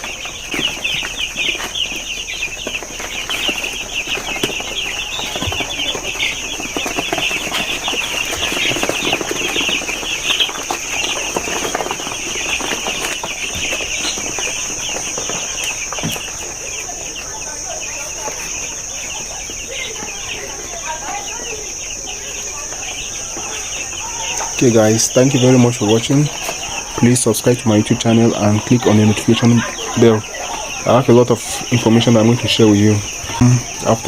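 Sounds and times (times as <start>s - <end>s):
chicks peeping: 0.0s - 34.0s.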